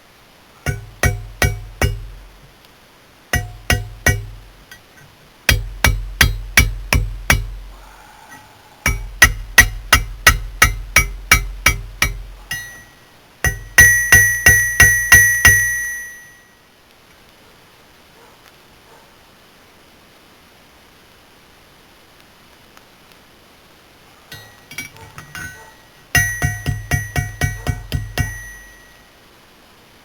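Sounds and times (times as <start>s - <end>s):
hammer ringing on hot steel: 0.6s - 2.5s, 3.4s - 7.7s, 8.3s - 16.5s, 24.3s - 29.0s.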